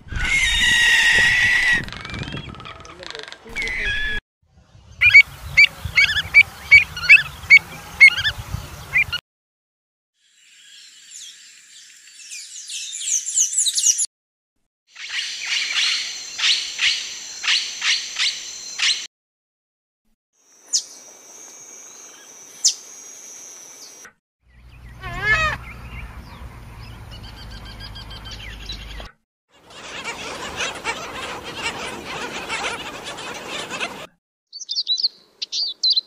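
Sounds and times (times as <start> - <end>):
wavering bird call: 3.5 - 4.2, 24.8 - 25.8
high bird twittering: 5.0 - 8.3, 29.8 - 36.0
clear whistled bird notes: 34.5 - 36.0.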